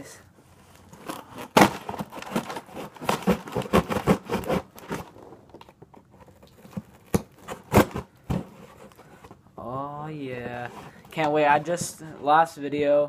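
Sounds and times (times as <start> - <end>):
cardboard box being opened: 0.6 - 9.4, 10.4 - 12.1.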